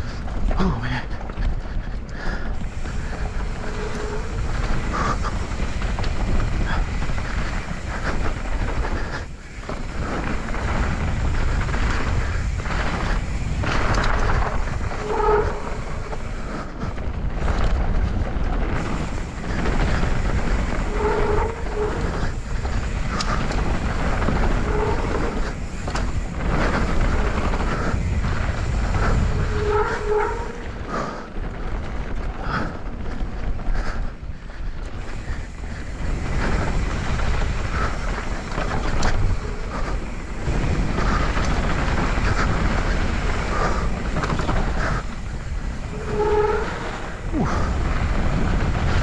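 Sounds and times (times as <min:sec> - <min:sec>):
bike rattling over ground: 0:00.0 - 0:49.0
bike tyres rolling on dirt: 0:00.0 - 0:49.0
wind rumble on microphone: 0:00.0 - 0:49.0.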